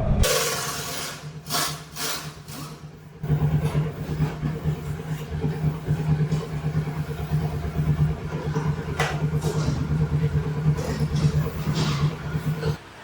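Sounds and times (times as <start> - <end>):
motorcycle engine idling: 3.0 - 12.8.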